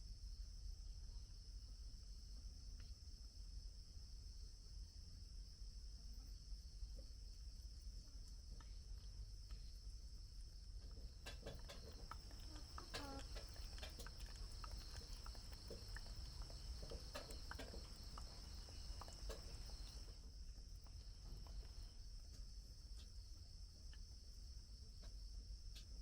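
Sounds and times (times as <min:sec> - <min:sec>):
insects chirring: 0:05.4 - 0:26.0
soft ticks: 0:08.2 - 0:09.9, 0:10.6 - 0:20.2, 0:25.0 - 0:26.0.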